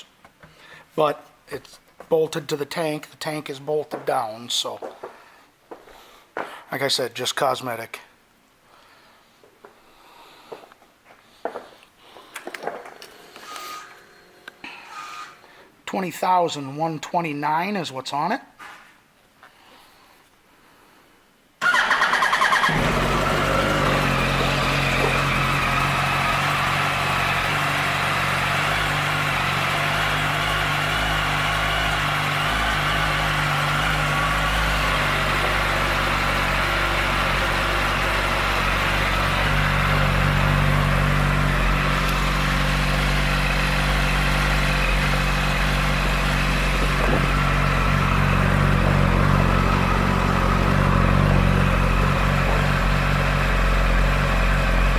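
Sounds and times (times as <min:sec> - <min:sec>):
electric starter cranking: 0:12.4 - 0:15.5, 0:21.6 - 0:28.2
motorcycle engine idling: 0:21.6 - 0:54.9.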